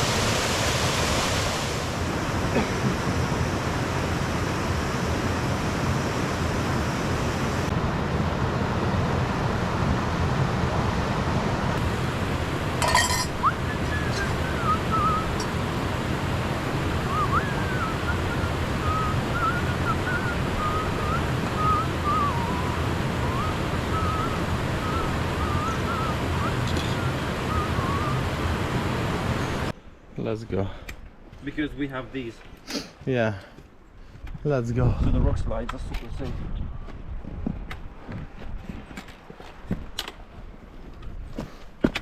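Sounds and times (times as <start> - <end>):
waterfall rushing: 0.0 - 29.7
wind: 0.0 - 42.0
thin wavering high tone: 12.8 - 15.6.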